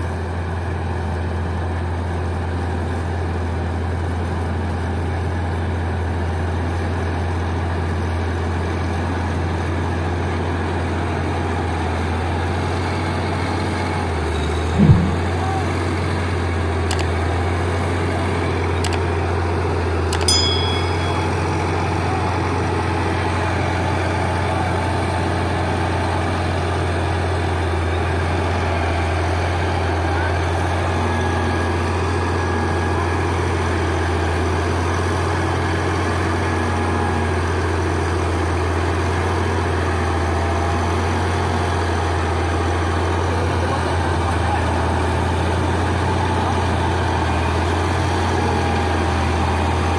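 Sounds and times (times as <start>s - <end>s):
heavy vehicle engine droning: 0.0s - 49.9s
sharp metallic clink: 20.2s - 22.1s.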